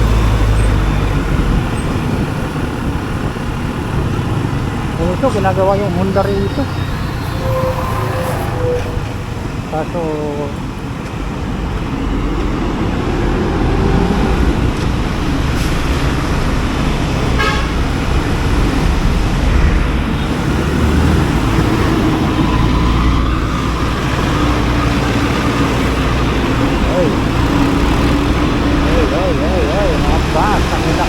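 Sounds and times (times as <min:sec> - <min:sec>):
road traffic rumble: 0:00.0 - 0:31.0
horn toot: 0:05.2 - 0:09.7, 0:17.2 - 0:17.9.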